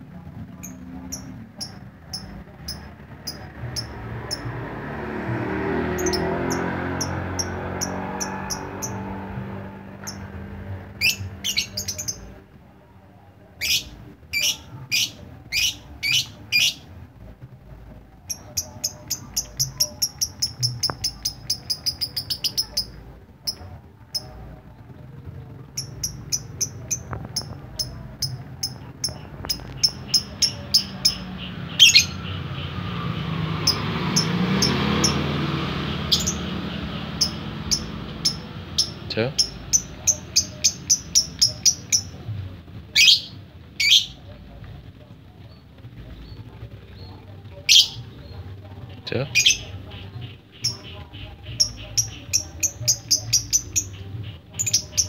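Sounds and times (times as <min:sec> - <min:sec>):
lovebird chirping: 0:00.5 - 0:04.5, 0:05.8 - 0:12.5, 0:13.6 - 0:16.9, 0:18.2 - 0:24.4, 0:25.6 - 0:32.9, 0:33.6 - 0:42.2, 0:49.3 - 0:55.0.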